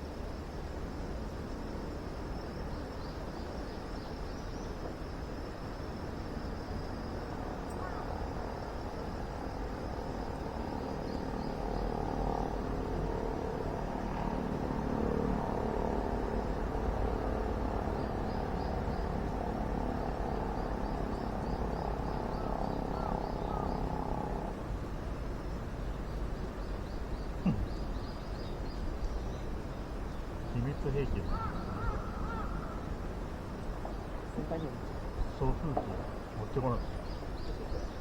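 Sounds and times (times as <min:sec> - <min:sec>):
faint high chirping: 0:07.6 - 0:08.6.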